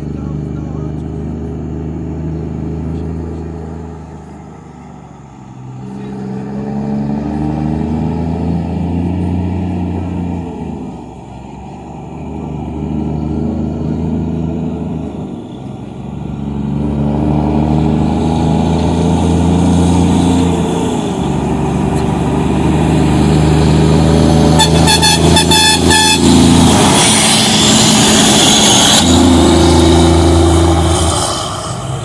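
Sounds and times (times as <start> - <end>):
truck diesel engine revving: 0.0 - 32.0
short horn toots: 24.6 - 26.4.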